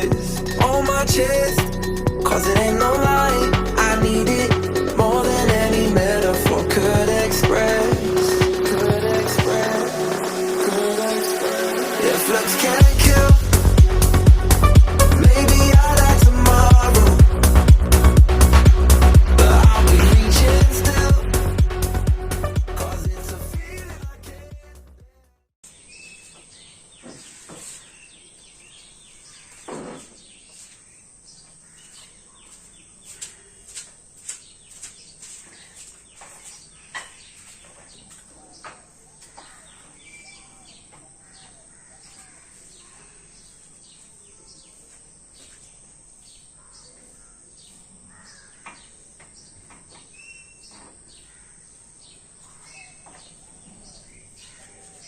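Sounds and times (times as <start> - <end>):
small birds chirping: 25.6 - 55.0.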